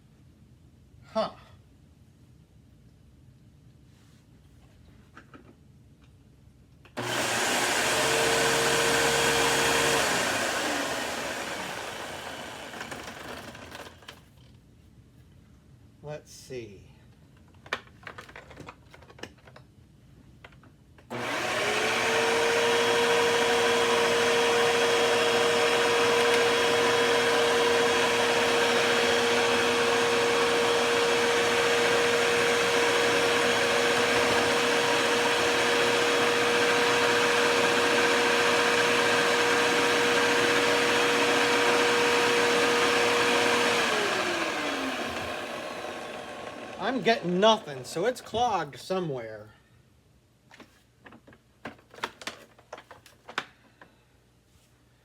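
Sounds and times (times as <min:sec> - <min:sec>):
vacuum cleaner motor running: 0:07.0 - 0:14.2, 0:21.1 - 0:47.9.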